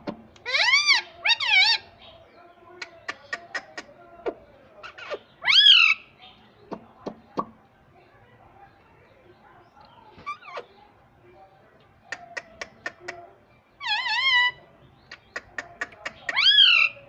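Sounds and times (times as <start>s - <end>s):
parakeet squawking: 0.4s - 1.9s, 4.8s - 6.1s, 13.8s - 14.6s, 15.3s - 17.0s.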